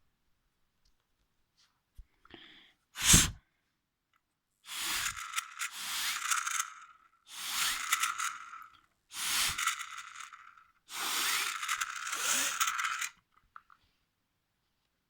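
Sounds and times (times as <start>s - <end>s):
breath blowing rushing hiss: 3.0s - 3.4s
plastic parts rattling: 4.8s - 13.2s.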